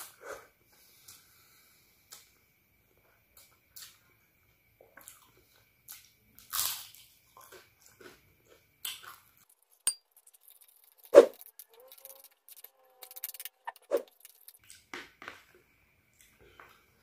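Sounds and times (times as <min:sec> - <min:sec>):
crunchy food chewing: 0:04.9 - 0:14.9.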